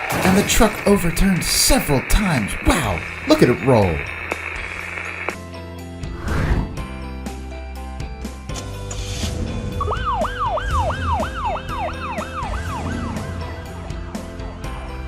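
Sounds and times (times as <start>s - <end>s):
cartoon background music: 8.5s - 15.0s
emergency siren sweeping: 9.8s - 14.6s.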